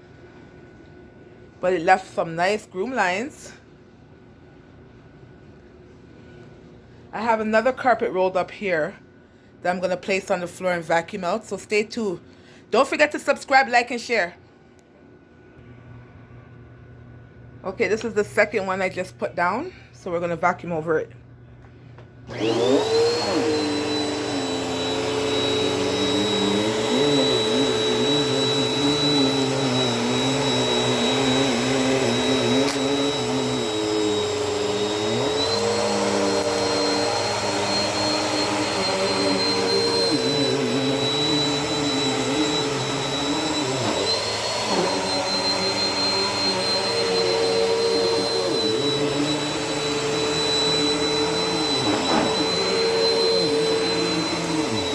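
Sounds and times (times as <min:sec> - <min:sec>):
vacuum cleaner motor whining: 0:22.3 - 0:54.9.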